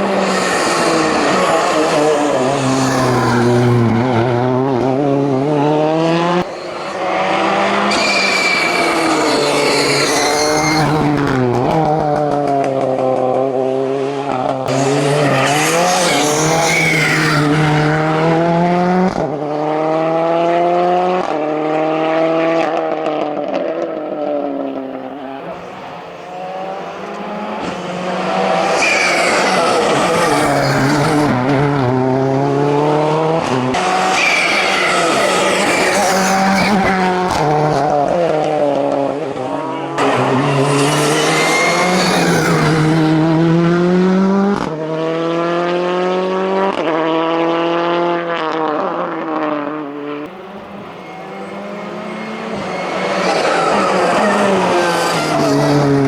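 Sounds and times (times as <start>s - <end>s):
tyre squeals: 0.0s - 4.7s, 6.5s - 11.4s, 14.7s - 18.6s, 27.6s - 31.7s, 33.8s - 37.4s, 39.5s - 43.2s, 49.8s - 56.0s
racing car engine revving: 0.0s - 56.0s.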